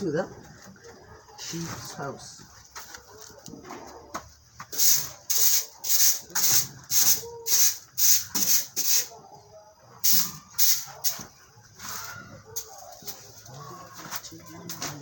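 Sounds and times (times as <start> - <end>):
broom sweeping floor: 4.6 - 9.1, 10.2 - 12.3.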